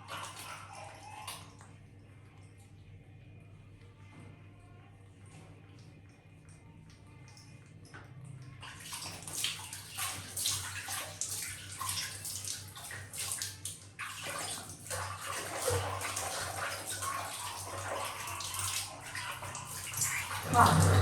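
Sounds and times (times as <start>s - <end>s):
water splashing and running: 8.6s - 21.0s.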